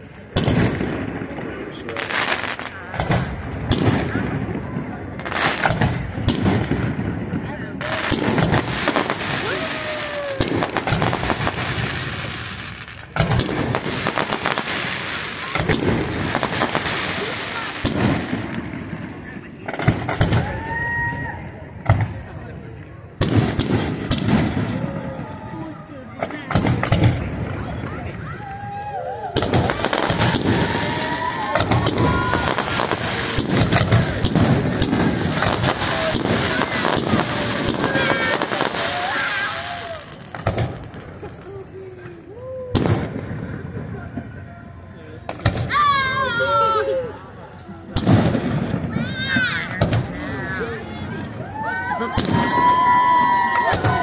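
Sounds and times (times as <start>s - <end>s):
firework crackling pops: 0.0s - 22.2s, 23.2s - 24.9s, 26.2s - 27.7s, 28.4s - 41.6s, 42.8s - 44.3s, 45.2s - 45.8s, 47.9s - 50.3s, 51.8s - 54.0s
firework bangs: 0.0s - 41.6s, 42.6s - 44.6s, 45.2s - 46.4s, 47.9s - 54.0s
deep firework boom: 2.9s - 21.0s, 23.2s - 25.4s, 26.5s - 28.2s, 29.3s - 39.2s, 42.7s - 44.3s, 48.0s - 50.2s, 52.1s - 54.0s.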